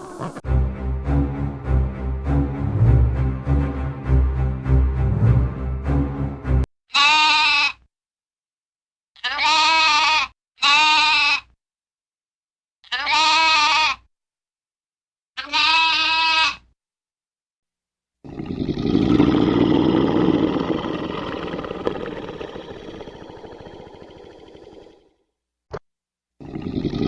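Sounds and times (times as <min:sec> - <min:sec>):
farm animal bleating: 0:06.9 - 0:07.9, 0:09.2 - 0:11.6, 0:12.8 - 0:14.1, 0:15.4 - 0:16.7.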